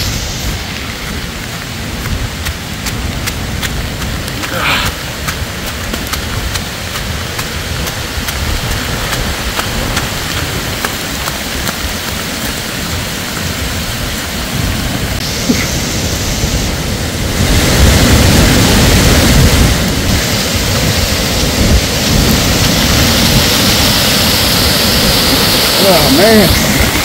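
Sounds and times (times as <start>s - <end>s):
heavy rain pouring: 0.0s - 27.0s
wind gusts on microphone: 0.0s - 27.0s
raindrops ticking: 0.4s - 16.2s.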